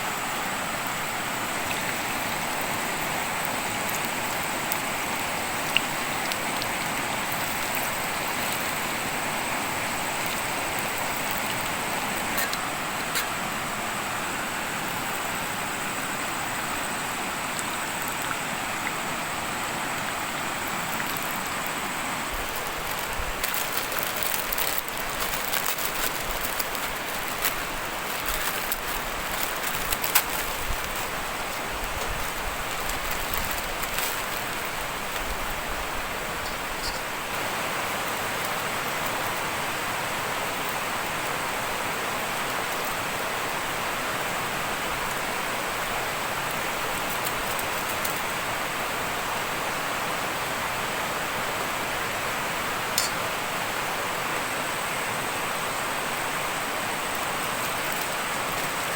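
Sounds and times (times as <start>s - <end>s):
heavy rain: 0.0s - 58.9s
sharp rain taps and patters: 0.0s - 58.9s.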